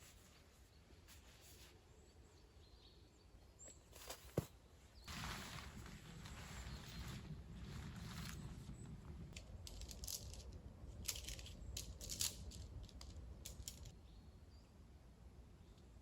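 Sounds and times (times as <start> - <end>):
light clicks and rustles: 5.1 - 14.0
low steady rumble: 5.1 - 15.7.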